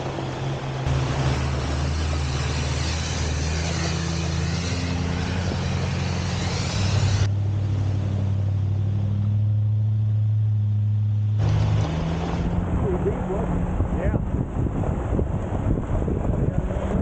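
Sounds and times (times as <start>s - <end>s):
off-road engines running: 0.0s - 17.0s.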